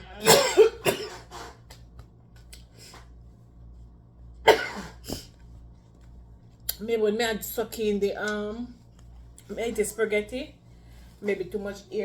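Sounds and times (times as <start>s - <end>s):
woman coughing: 0.1s - 1.5s, 4.5s - 5.3s.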